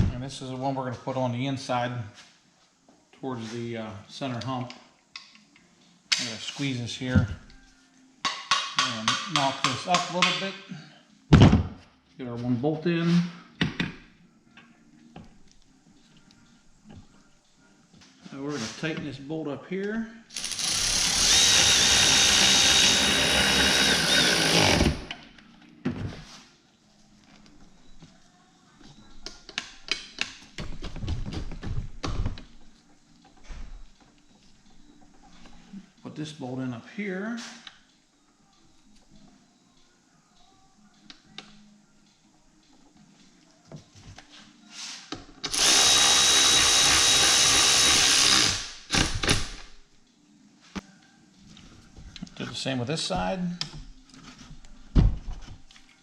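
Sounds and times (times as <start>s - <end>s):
power drill driving a bolt: 20.3s - 25.1s, 45.5s - 49.6s.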